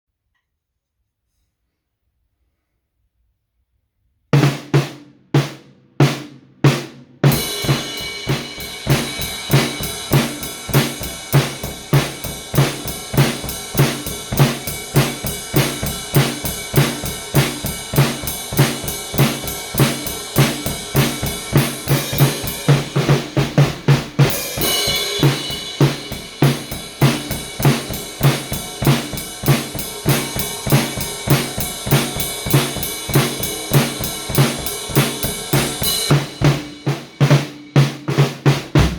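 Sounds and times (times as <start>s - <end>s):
snare drum: 4.4s - 38.9s
crash cymbal: 24.3s - 28.8s.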